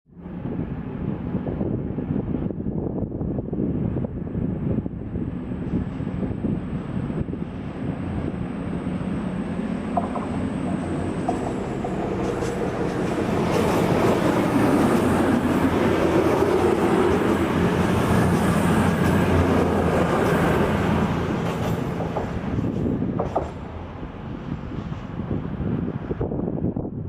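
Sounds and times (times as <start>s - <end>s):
diesel train engines: 0.2s - 26.8s
train wheels on rail: 5.4s - 26.2s.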